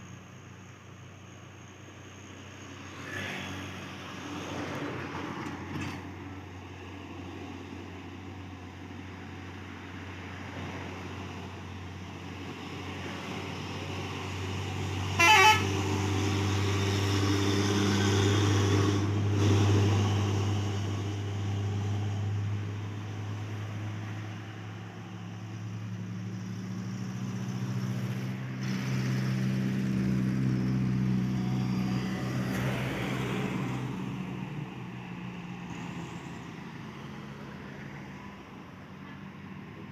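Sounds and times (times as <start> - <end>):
truck engines droning: 0.0 - 39.9.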